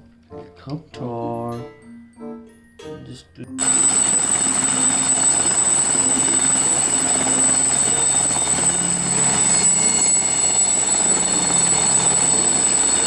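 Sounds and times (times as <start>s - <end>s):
helicopter running: 3.6s - 13.0s.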